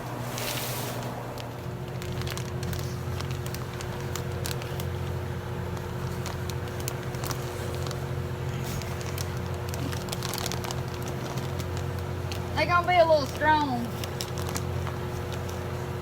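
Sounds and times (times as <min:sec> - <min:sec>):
low mechanical hum: 0:00.0 - 0:16.0
light clicks and crackles: 0:13.2 - 0:15.8.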